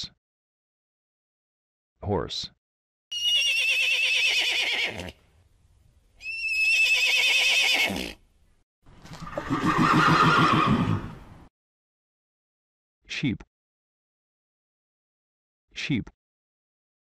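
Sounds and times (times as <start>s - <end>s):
horse whinnying: 3.1s - 5.2s, 6.2s - 8.2s, 9.1s - 11.2s.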